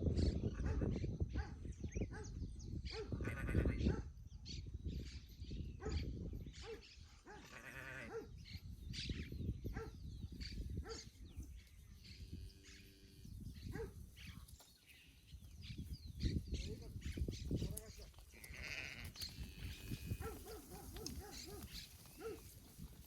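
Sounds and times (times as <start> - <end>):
livestock bleating: 3.2 - 3.8, 7.4 - 8.1, 18.3 - 20.4
clicking and rustling: 20.3 - 22.6.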